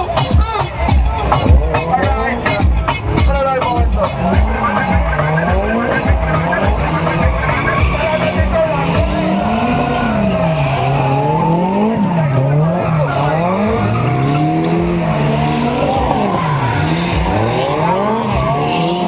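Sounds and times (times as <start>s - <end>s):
tyres squealing: 0.0s - 19.0s
car engine revving hard: 0.8s - 19.0s.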